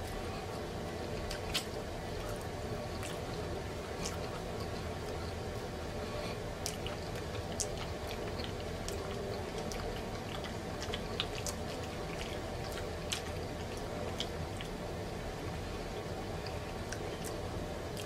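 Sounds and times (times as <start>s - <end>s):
close-up chewing: 0.0s - 5.4s, 6.0s - 18.0s.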